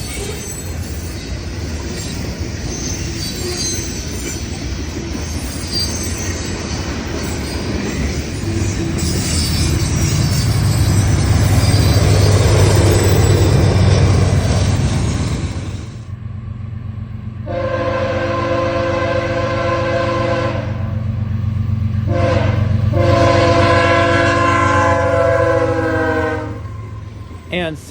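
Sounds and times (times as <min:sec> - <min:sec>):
diesel locomotive rumbling: 0:00.0 - 0:27.9
freight train wheels rattling on rails: 0:00.0 - 0:27.9
train air horn: 0:17.4 - 0:20.8, 0:22.0 - 0:27.1.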